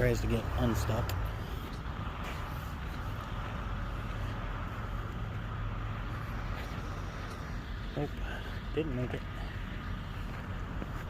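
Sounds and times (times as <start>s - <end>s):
low truck engine hum: 0.0s - 11.0s.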